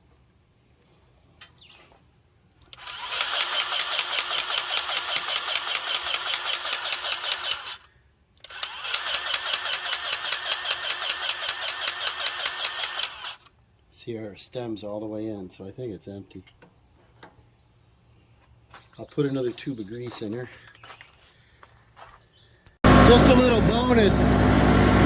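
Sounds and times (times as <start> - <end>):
powered grease gun running: 2.7 - 13.5, 22.8 - 25.0.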